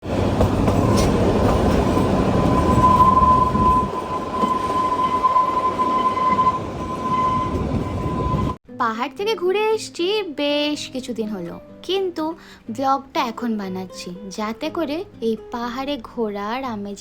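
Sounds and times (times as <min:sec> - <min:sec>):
train rumbling and rattling on track: 0:00.0 - 0:08.6.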